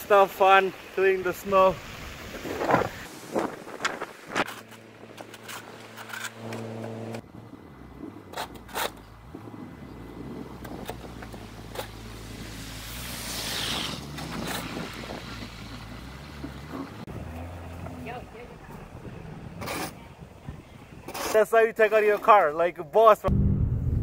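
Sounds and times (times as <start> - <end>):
hissing rush: 12.2 - 15.3.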